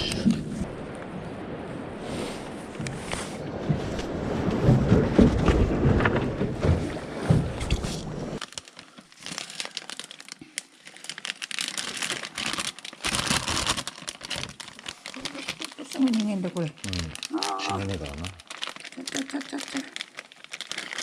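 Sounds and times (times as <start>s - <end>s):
wind buffeting: 0.0s - 8.4s
crinkling rustle: 2.1s - 21.0s.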